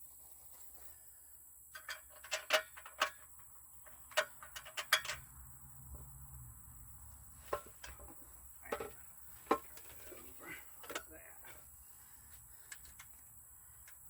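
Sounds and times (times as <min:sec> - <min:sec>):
clicks and knocks of bolts and nuts: 0:01.7 - 0:05.3, 0:07.5 - 0:11.2, 0:12.7 - 0:14.0.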